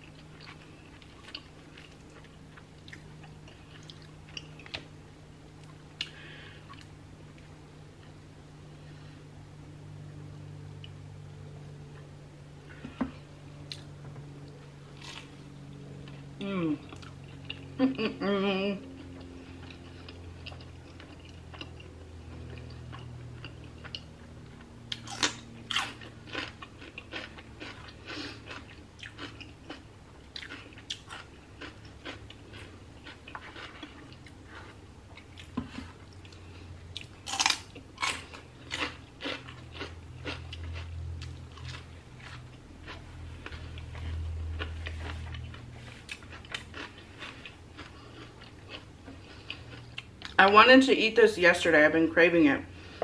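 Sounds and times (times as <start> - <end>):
crunchy biting and chewing: 13.6 - 16.2, 19.0 - 50.4
person humming: 16.4 - 16.9, 17.8 - 18.8.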